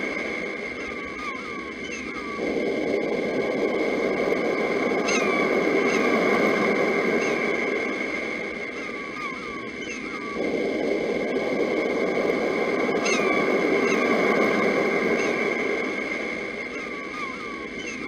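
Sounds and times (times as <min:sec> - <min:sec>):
birds chirping: 0:13.0 - 0:18.0.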